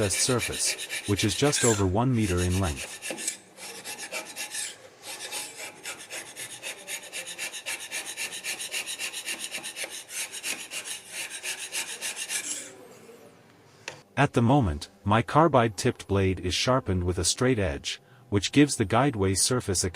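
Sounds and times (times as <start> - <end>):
hand scraper rasping on metal: 0.0 - 12.8.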